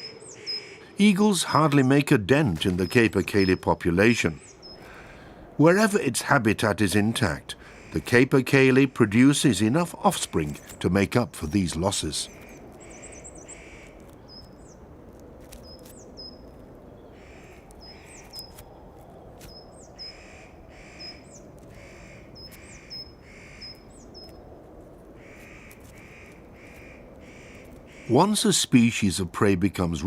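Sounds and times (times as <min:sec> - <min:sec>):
crow-like caws: 0:00.0 - 0:01.0, 0:04.6 - 0:05.5, 0:07.5 - 0:08.1, 0:12.3 - 0:14.4, 0:17.1 - 0:18.5, 0:20.0 - 0:24.3, 0:25.1 - 0:28.3
low outdoor background: 0:00.0 - 0:30.0.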